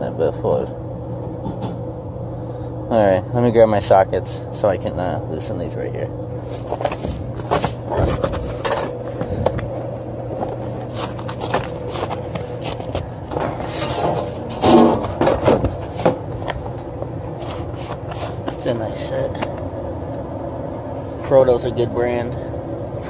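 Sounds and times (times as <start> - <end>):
metal tools clinking and scraping: 6.6 - 9.5, 10.4 - 16.8.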